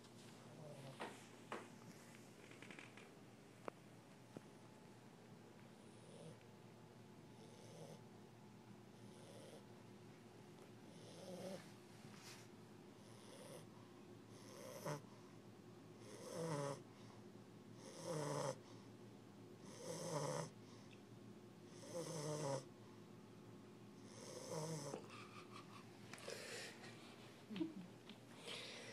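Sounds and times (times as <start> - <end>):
puppy snoring: 0.5 - 1.1, 5.7 - 6.4, 7.3 - 8.1, 8.9 - 9.7, 10.8 - 11.7, 13.0 - 15.2, 16.0 - 16.8, 17.8 - 18.8, 19.6 - 20.6, 21.7 - 22.7, 24.0 - 25.3.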